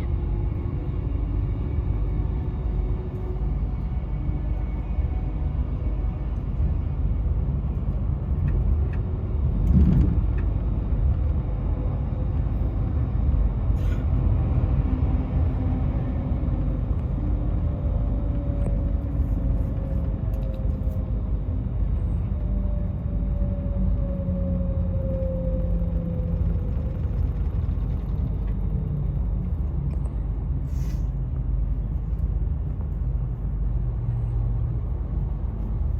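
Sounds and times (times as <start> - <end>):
low rumble of travel: 0.0 - 35.9.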